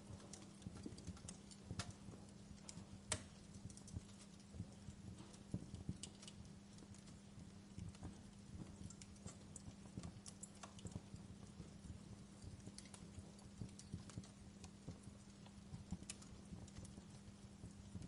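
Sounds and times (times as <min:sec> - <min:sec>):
faint low hum: 0:00.0 - 0:18.0
wood fire crackling and popping: 0:00.0 - 0:18.0.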